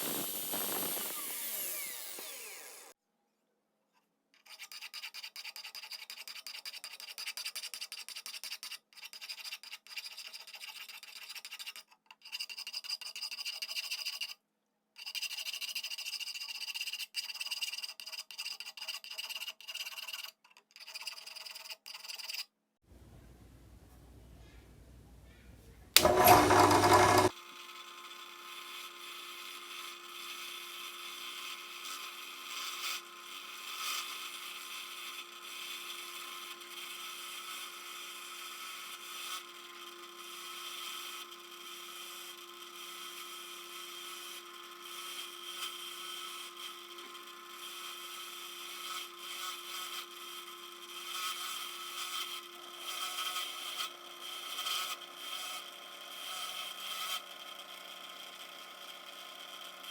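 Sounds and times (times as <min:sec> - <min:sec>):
small tool humming: 0:00.0 - 0:03.0, 0:26.0 - 0:59.9.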